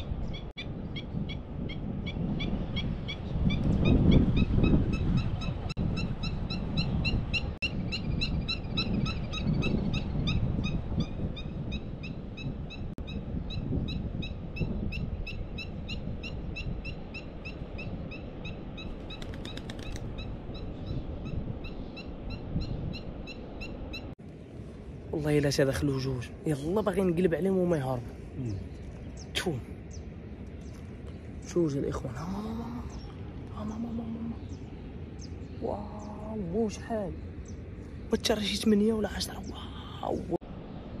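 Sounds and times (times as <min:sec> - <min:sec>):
wind rumble on microphone: 0:00.0 - 0:41.0
small bird chirping: 0:11.4 - 0:24.1
wing flutter: 0:18.9 - 0:20.2.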